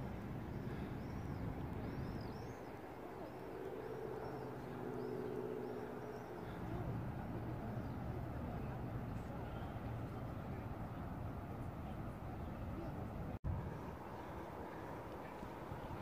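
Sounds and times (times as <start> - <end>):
small birds chirping: 0.0 - 11.4
outdoor background noise: 0.0 - 16.0.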